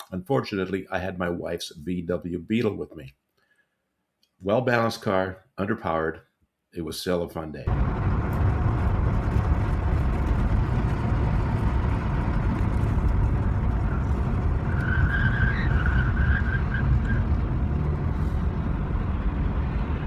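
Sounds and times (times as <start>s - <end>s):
car engine: 7.7s - 20.0s
road noise: 7.7s - 20.0s
high-pitched squeal: 13.7s - 18.5s.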